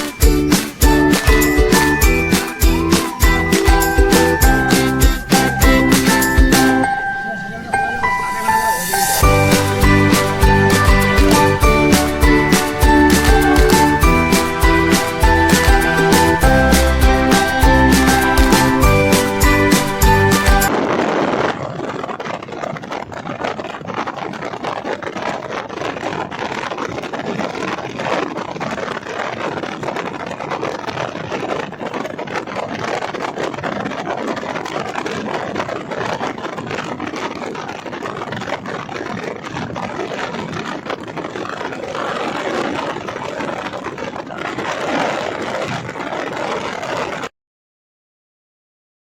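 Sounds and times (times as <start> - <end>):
car road and wind noise: 20.7 - 47.2.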